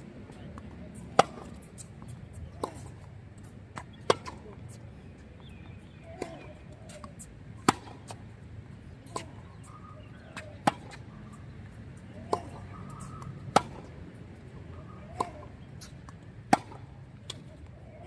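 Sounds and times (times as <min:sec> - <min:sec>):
tennis ball bouncing: 0:00.5 - 0:08.3, 0:09.0 - 0:11.4, 0:12.0 - 0:14.0, 0:15.0 - 0:17.8
tennis ball hit with rackets: 0:00.6 - 0:01.9, 0:02.5 - 0:03.0, 0:03.7 - 0:04.5, 0:06.1 - 0:08.2, 0:09.0 - 0:11.1, 0:12.2 - 0:13.9, 0:15.0 - 0:17.6.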